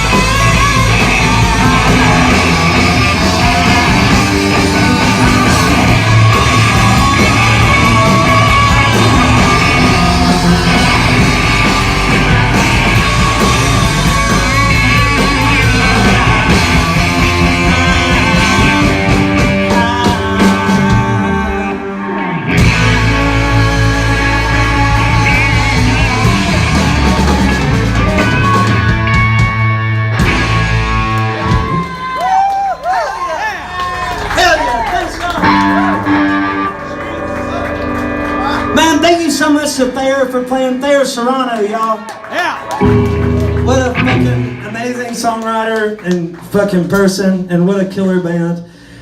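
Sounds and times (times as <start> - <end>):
shouted vocals: 0.0 - 21.8, 31.4 - 36.7, 42.0 - 44.5
punk rock band playing: 0.0 - 47.3.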